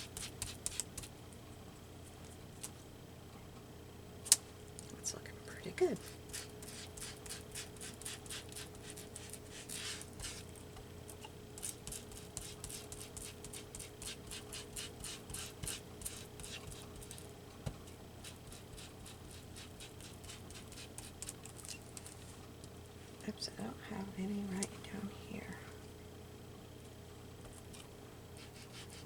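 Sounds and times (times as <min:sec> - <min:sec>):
faint steady hum: 0:00.0 - 0:29.0
foam tool scrubbing paper: 0:06.0 - 0:10.5, 0:11.6 - 0:17.2, 0:18.2 - 0:21.2, 0:28.4 - 0:29.0.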